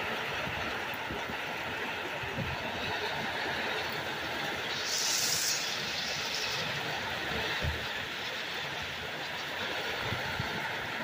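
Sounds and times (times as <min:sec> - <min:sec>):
gusting wind: 0:00.0 - 0:11.0
heavy rain: 0:00.0 - 0:11.0
wind bumps on microphone: 0:06.0 - 0:08.0.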